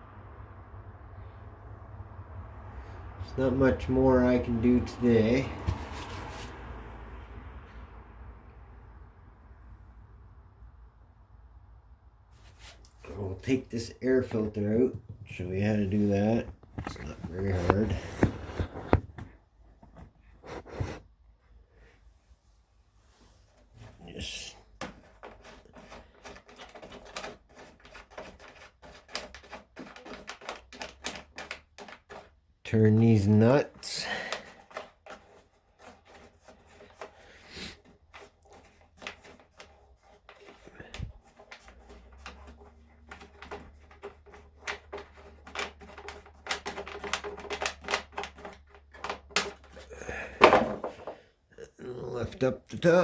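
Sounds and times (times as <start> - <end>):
rapid clicking of nuts turning: 24.8 - 49.9.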